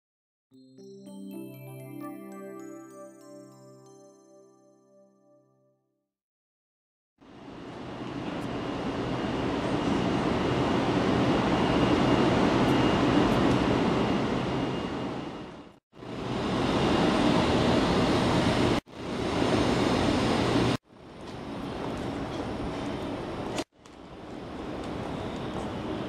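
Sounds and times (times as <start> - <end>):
train motors and wheels rumbling: 7.3 - 26.0
faint high whine: 7.4 - 23.5.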